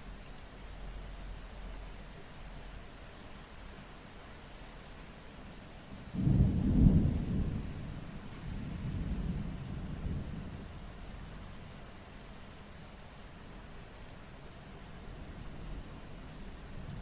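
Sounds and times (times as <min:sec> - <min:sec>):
steady rain hissing: 0:00.0 - 0:17.0
thunder rumbling: 0:06.1 - 0:11.1.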